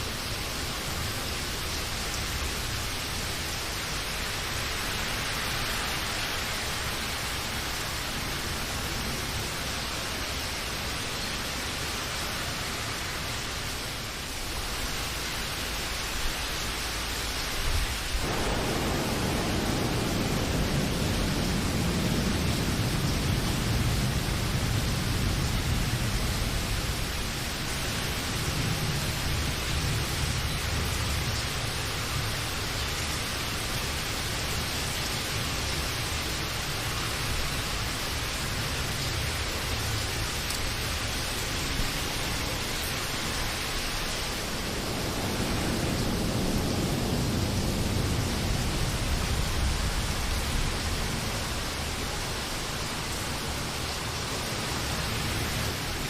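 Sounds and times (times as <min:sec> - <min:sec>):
steady rain: 0:00.0 - 0:56.0
low thunder roll: 0:17.8 - 0:32.4, 0:40.8 - 0:54.0.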